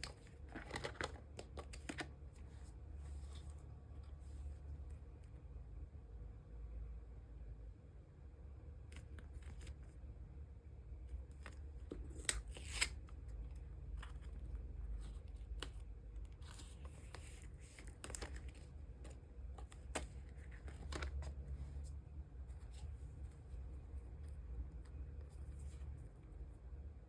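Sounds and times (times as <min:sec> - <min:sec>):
plastic sliding and rustling: 0:00.0 - 0:04.9, 0:11.1 - 0:26.4.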